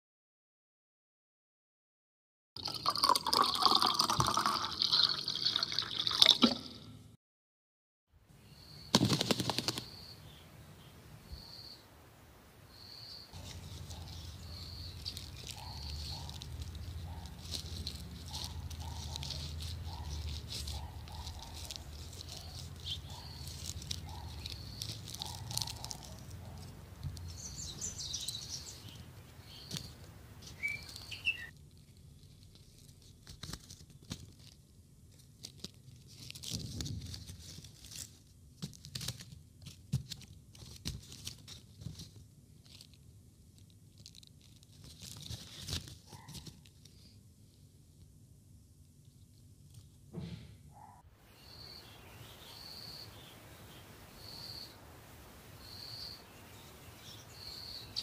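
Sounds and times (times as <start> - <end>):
birds chirping: 8.4 - 12.0, 12.7 - 31.5, 50.8 - 55.0, 55.6 - 58.0
clicks and rustles: 13.4 - 47.0.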